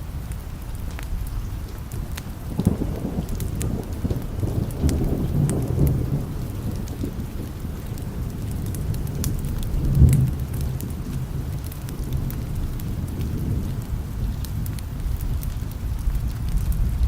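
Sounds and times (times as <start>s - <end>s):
steady rain: 0.0s - 17.0s
rolling thunder: 2.0s - 17.0s.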